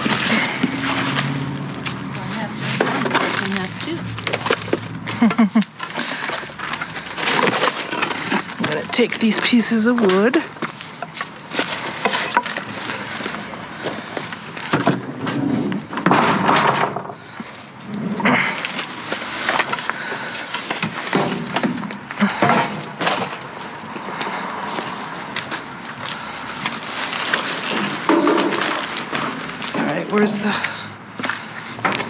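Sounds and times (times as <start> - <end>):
scrap wood knocking and clattering: 14.6 - 17.3, 20.6 - 23.5.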